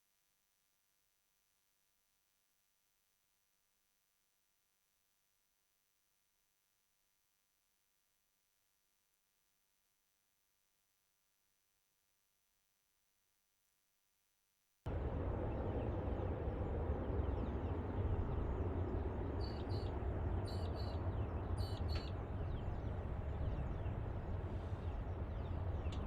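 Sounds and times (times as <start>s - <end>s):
low rumble with hiss: 14.9s - 26.0s
bird chirping: 17.1s - 24.0s.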